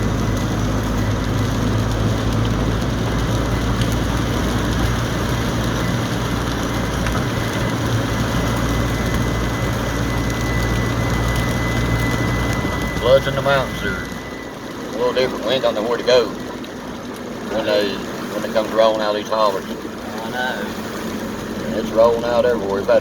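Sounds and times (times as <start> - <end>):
rain hiss: 0.0 - 23.0
vehicle engine and road noise: 0.0 - 23.0
faint steady high tone: 8.5 - 16.0.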